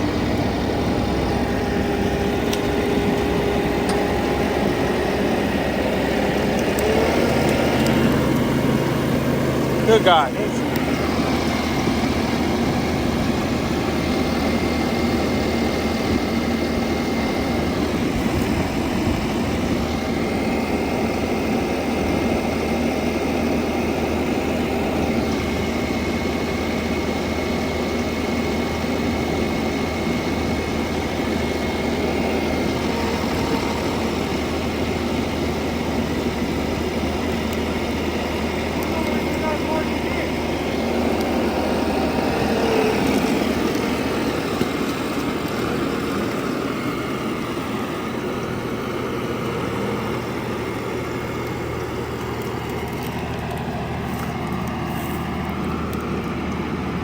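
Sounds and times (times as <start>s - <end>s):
heavy machinery engine hum: 0.0s - 57.0s
thin steady whine: 0.0s - 57.0s.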